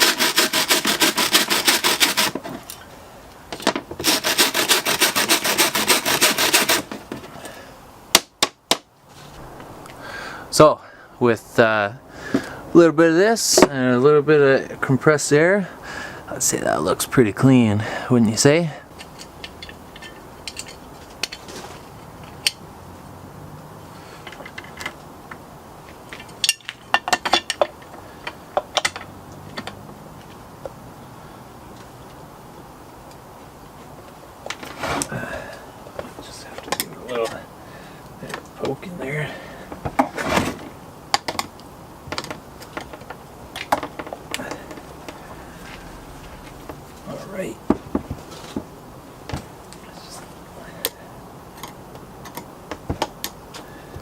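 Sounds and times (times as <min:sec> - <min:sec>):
scrubbing air filter: 0:00.0 - 0:02.5, 0:04.0 - 0:07.5
light metallic clatter of tools: 0:19.0 - 0:22.6, 0:26.1 - 0:29.8.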